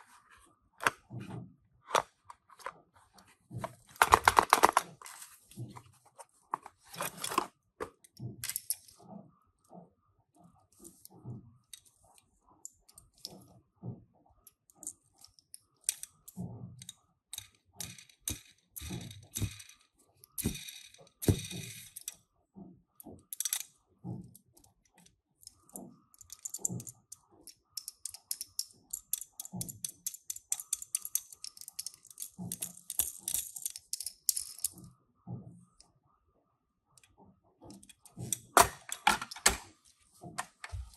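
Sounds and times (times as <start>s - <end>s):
small clicks and taps of toys: 23.0s - 34.8s.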